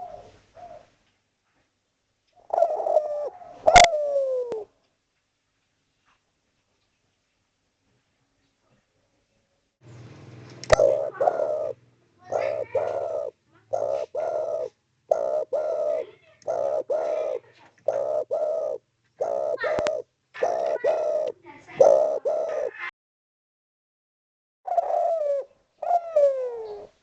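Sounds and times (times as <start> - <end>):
dove cooing: 0.0 - 0.9, 2.4 - 4.7, 10.6 - 22.9, 24.7 - 27.0.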